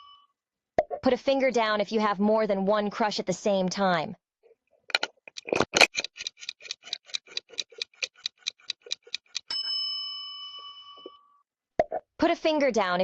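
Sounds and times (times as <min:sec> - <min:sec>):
clock ticking: 0:04.9 - 0:09.5.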